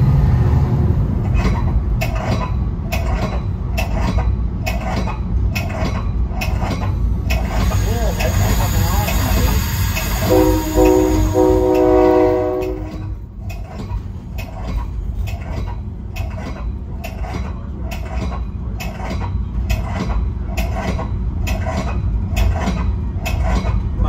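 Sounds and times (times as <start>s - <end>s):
low rumble of rolling cars: 0.0s - 8.0s, 10.3s - 24.0s
train wheels clicking over rail joints: 0.0s - 24.0s
train horn chord: 10.2s - 13.2s.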